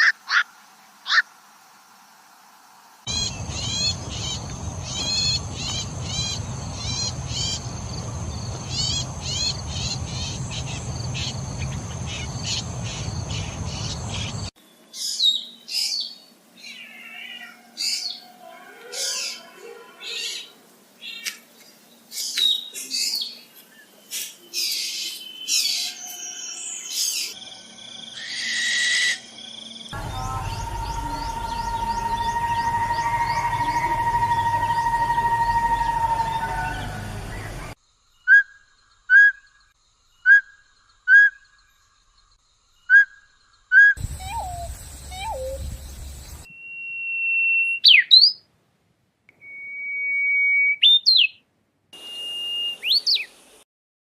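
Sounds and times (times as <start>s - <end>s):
bird whistled call note: 30.0s - 37.7s, 43.7s - 45.8s, 52.0s - 53.3s
songbird short high calls: 42.9s - 48.4s, 50.4s - 51.4s.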